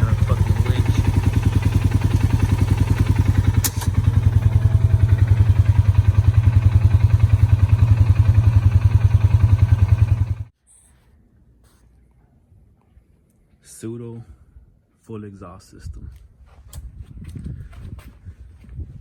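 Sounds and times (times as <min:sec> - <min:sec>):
car engine idling: 0:00.0 - 0:10.5.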